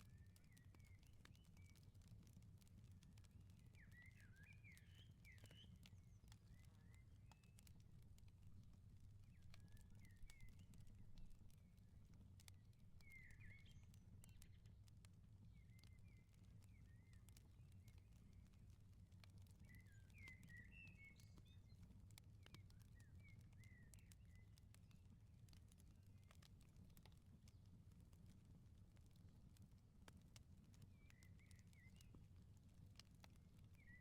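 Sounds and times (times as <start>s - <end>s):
wood fire crackling and popping: 0.0s - 34.0s.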